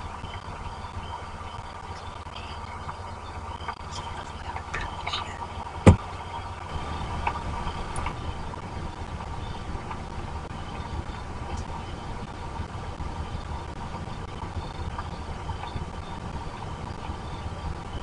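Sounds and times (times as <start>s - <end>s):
rain and wind rumble: 0.0s - 18.0s
sharp thump: 5.8s - 6.0s.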